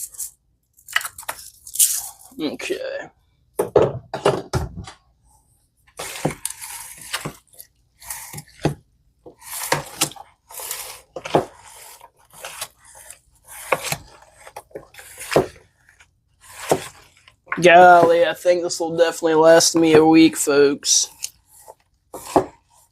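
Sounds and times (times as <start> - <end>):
wet squishy stirring strokes: 5.9 - 8.7, 9.3 - 18.5.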